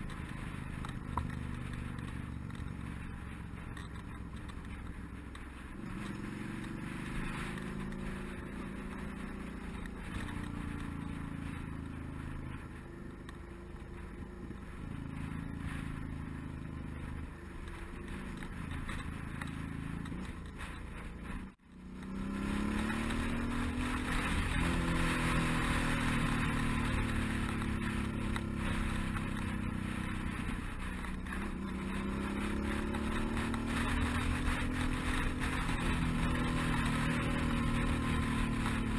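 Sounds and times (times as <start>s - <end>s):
motorcycle engine shifting gears: 0.0s - 38.9s
wind rushing over microphone: 14.1s - 38.9s.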